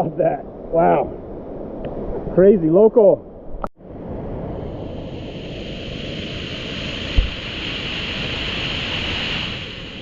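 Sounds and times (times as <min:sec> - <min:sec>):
rushing river and waterfall: 0:06.7 - 0:09.2
low thump: 0:07.2 - 0:07.4.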